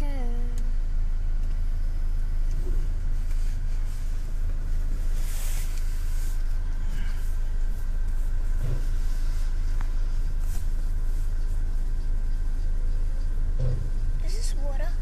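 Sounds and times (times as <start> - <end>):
car wash low rumble: 0.0 - 15.0
water spray hissing on car: 3.4 - 6.6.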